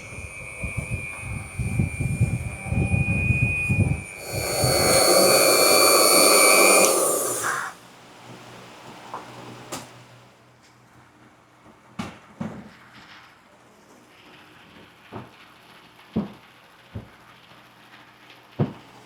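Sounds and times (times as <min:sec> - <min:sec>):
motor-driven machine whining: 0:00.0 - 0:07.8.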